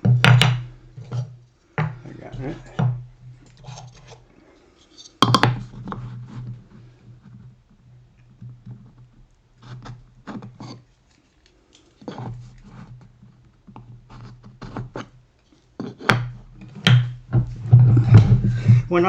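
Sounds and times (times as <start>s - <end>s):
sharp knocks on workbench: 0.0s - 0.7s, 16.0s - 18.5s
wood scratching and rubbing: 0.6s - 7.6s, 15.8s - 19.0s.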